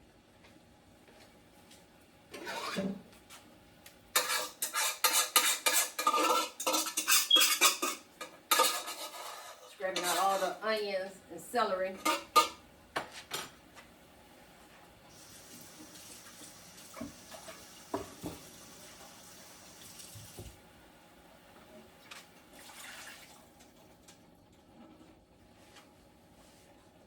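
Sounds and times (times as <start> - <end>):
water running from a tap: 15.1 - 20.4, 22.6 - 23.6.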